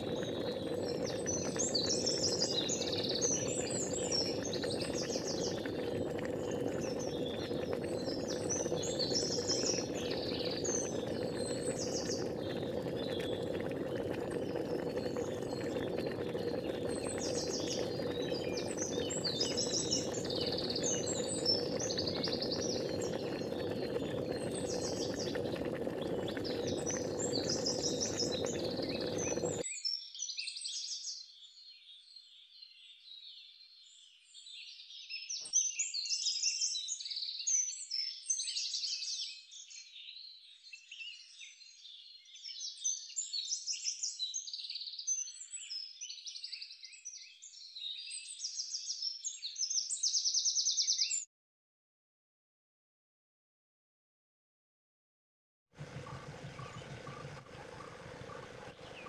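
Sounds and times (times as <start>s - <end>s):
small birds chirping: 0.0s - 29.6s, 55.8s - 59.0s.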